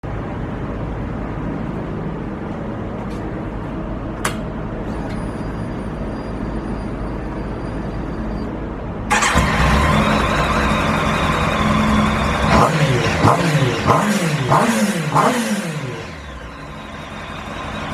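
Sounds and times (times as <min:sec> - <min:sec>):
motorcycle engine starting and running: 0:09.1 - 0:17.9.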